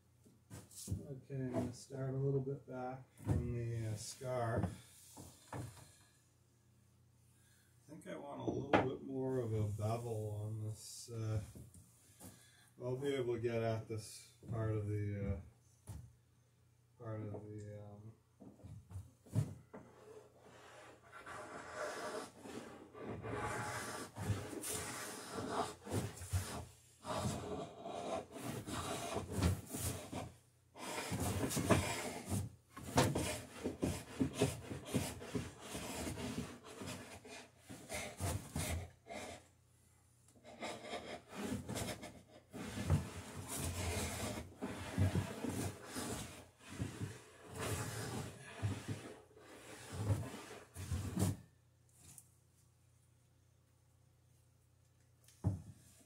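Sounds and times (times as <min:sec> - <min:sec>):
hand tool shaving wood: 0:33.1 - 0:38.8.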